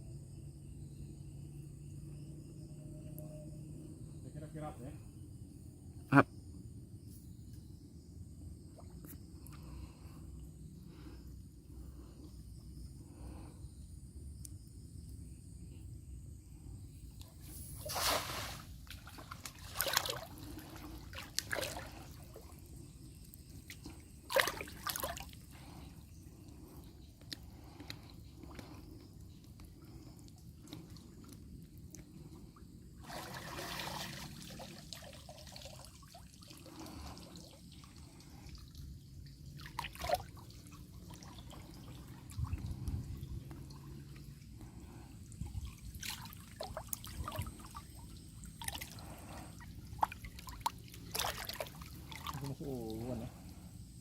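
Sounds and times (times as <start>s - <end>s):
water splashing and trickling: 17.1s - 53.7s.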